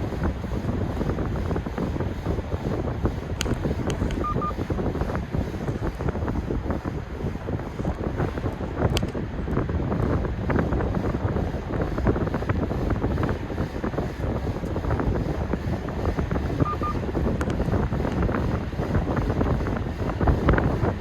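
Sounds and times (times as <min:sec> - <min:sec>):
wind buffeting microphone: 0:00.0 - 0:21.0
short beeps: 0:04.2 - 0:04.6, 0:16.6 - 0:17.0.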